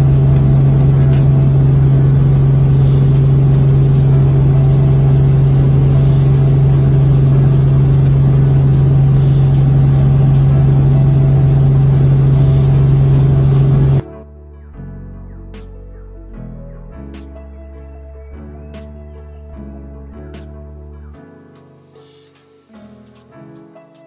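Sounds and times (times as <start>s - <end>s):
helicopter drone: 0.0s - 14.0s.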